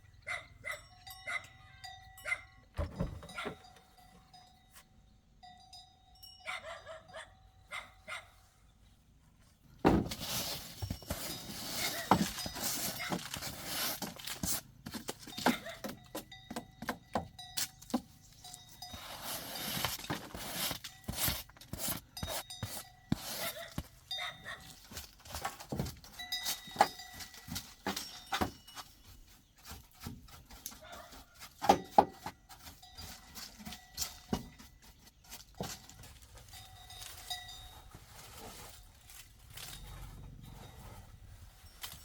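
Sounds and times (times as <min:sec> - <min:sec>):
clicks clinks and knocks: 0:10.1 - 0:37.8.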